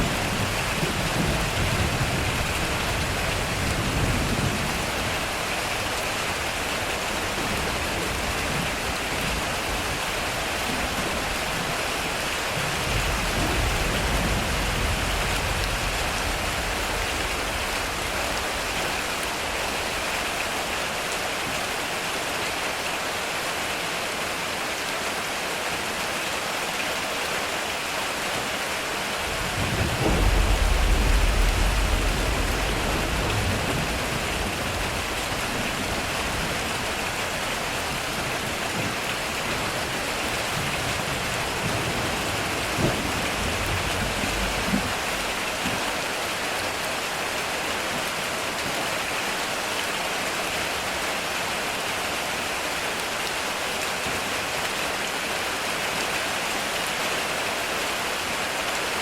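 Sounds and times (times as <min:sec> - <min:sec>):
low thunder rumbling: 0:00.0 - 0:20.8, 0:29.2 - 0:46.0
rain on a metal roof: 0:00.0 - 0:59.0.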